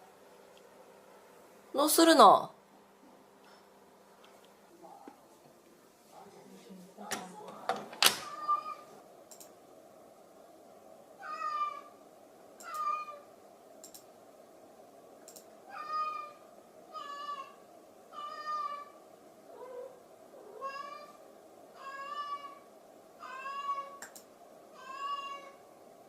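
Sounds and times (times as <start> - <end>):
cat meowing: 8.2 - 9.0, 11.2 - 12.0, 12.6 - 13.3, 15.7 - 19.0, 19.6 - 21.2, 21.8 - 24.0, 24.7 - 25.6
faint clicks: 9.3 - 9.6, 12.6 - 12.9, 13.8 - 14.1, 15.2 - 15.5, 24.0 - 24.3.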